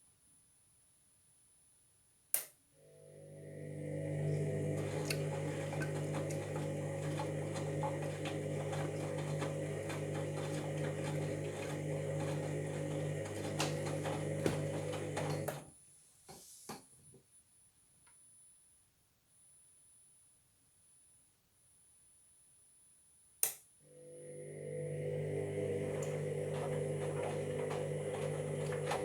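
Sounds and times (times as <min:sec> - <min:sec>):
washing machine motor hum: 0:02.8 - 0:15.7, 0:23.9 - 0:29.0.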